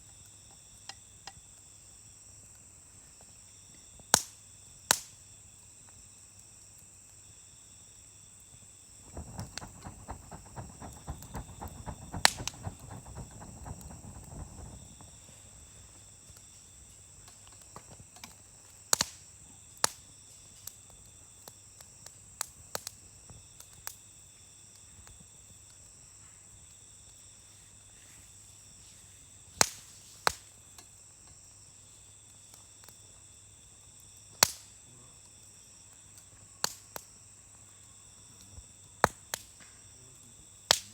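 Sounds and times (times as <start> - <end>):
crickets chirring: 0.0 - 40.9
campfire crackling: 0.4 - 7.2, 8.4 - 40.0, 40.6 - 40.9
wood popping: 9.0 - 15.9.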